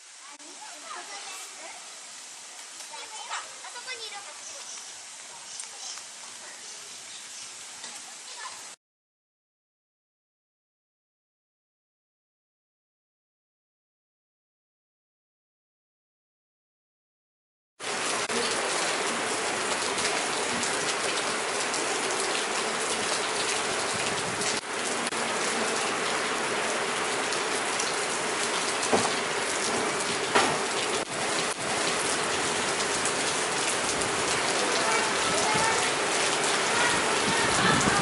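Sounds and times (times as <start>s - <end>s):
hiss of falling water: 0.0s - 8.8s, 17.8s - 38.0s.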